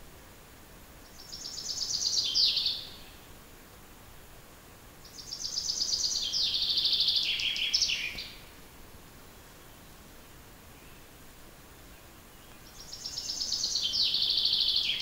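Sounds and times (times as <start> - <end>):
songbird trilling: 1.2 - 3.0, 5.1 - 8.4, 12.4 - 15.0.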